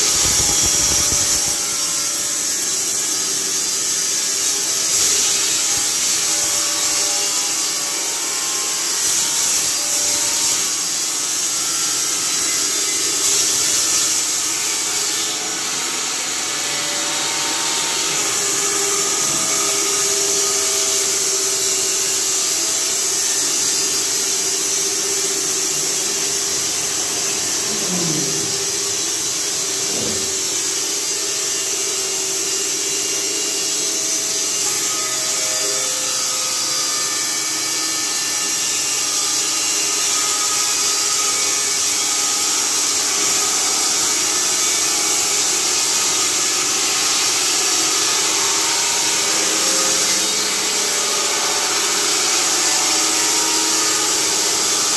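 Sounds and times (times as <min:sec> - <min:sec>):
band saw sawing a log: 0:14.0 - 0:33.0
motor hum: 0:29.6 - 0:30.7.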